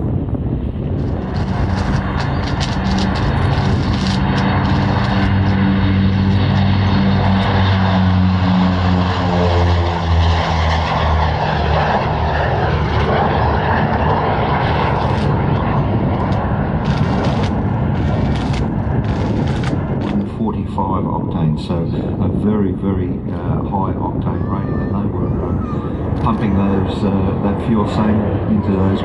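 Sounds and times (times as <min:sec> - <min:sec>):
broad rushing noise: 0:00.0 - 0:20.8
propeller plane flying past: 0:00.0 - 0:23.6, 0:24.2 - 0:29.0.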